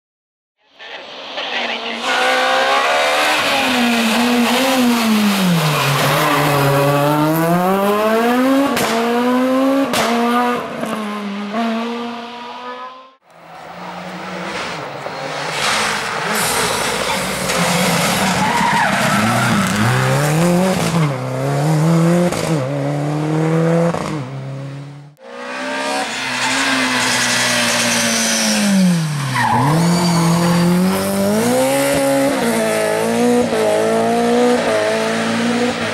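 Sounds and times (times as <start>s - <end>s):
rally car engines revving: 0.9s - 35.9s
tyre squeal: 25.9s - 31.0s.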